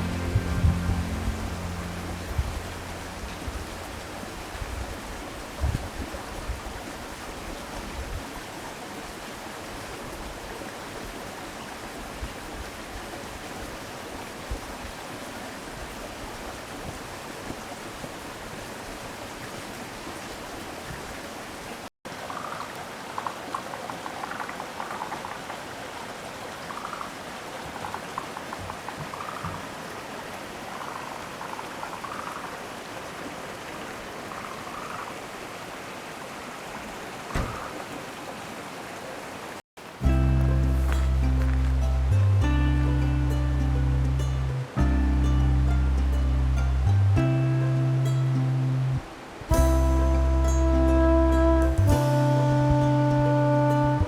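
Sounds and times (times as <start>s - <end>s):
brief higher-pitched sounds: 0.0s - 4.0s, 49.5s - 54.0s
running water rushing: 0.0s - 54.0s.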